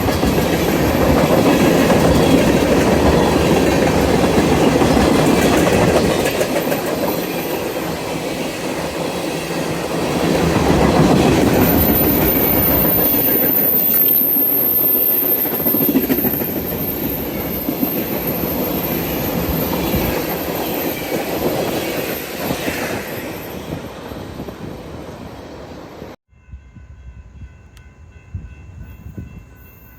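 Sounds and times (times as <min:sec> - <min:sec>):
train wheels clacking on rails: 0:00.0 - 0:25.0
high wheel squeal: 0:11.2 - 0:25.0.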